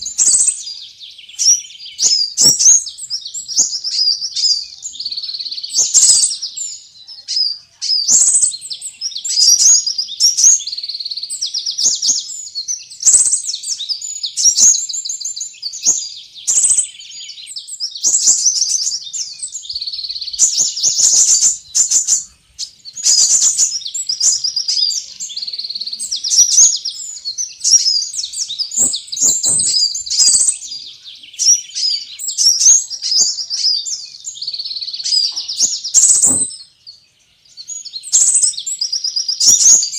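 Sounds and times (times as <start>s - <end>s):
birds twittering and chirping: 0.0s - 39.9s.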